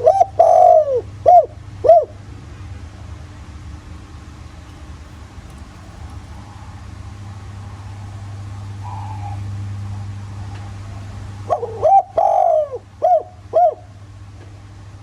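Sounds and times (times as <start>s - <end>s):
dove cooing: 0.0s - 2.1s, 4.6s - 6.8s
steady low hum: 4.2s - 8.6s.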